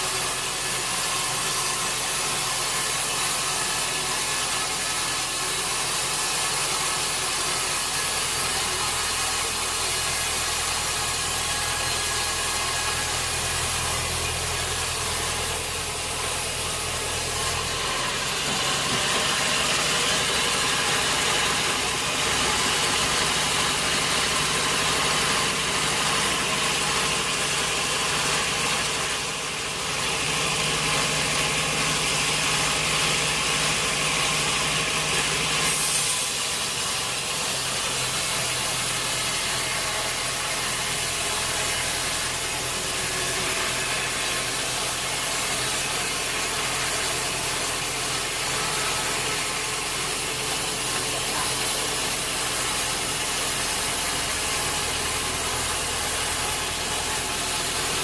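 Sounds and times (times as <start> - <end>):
sawmill saw and motor humming: 0.0 - 58.0.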